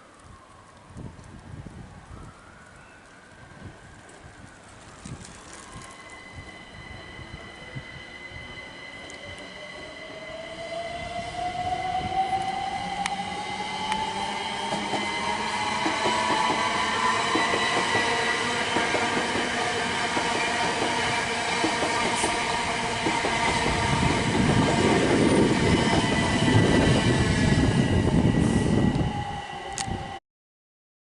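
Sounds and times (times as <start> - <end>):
high-pitched train whine: 4.8 - 30.2
train wheels rumbling: 5.4 - 30.2.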